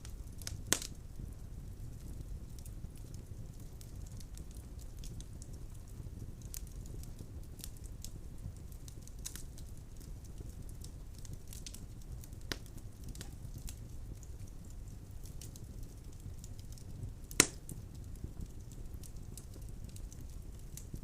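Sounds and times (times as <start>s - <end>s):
burning logs crackling and popping: 0.0s - 21.0s
fire flames rumbling: 0.0s - 21.0s.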